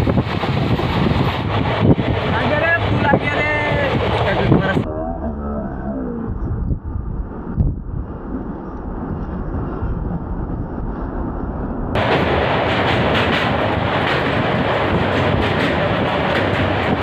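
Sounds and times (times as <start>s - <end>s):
passenger train running on track: 0.0s - 4.9s, 6.8s - 17.0s
train wheels clattering on bridge: 12.0s - 17.0s.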